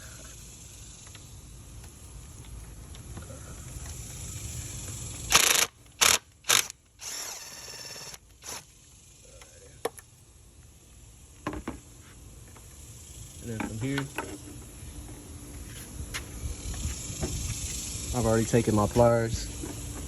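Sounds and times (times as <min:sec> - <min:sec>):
impact driver bursts: 0:05.3 - 0:08.6.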